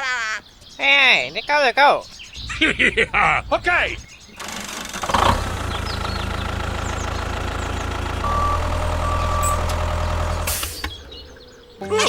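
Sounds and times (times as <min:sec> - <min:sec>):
small vehicle engine idling: 0:02.4 - 0:11.8.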